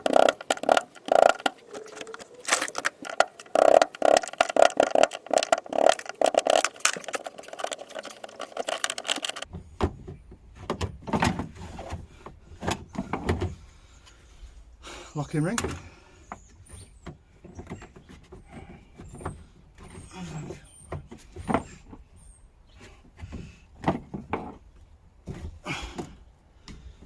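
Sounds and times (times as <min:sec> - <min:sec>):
hand tools clicking and knocking: 0:00.0 - 0:09.6.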